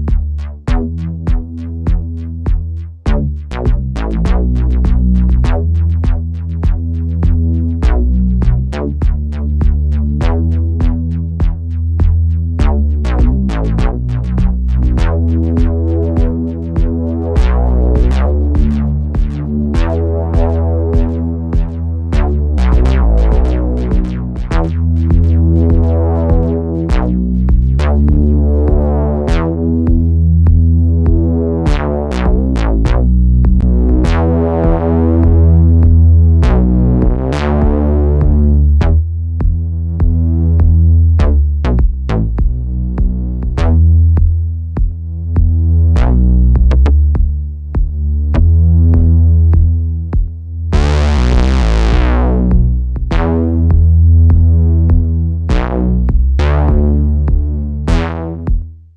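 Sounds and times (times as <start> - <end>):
drum machine beat: 0.0 - 58.8
gritty synth bass line: 0.0 - 58.9.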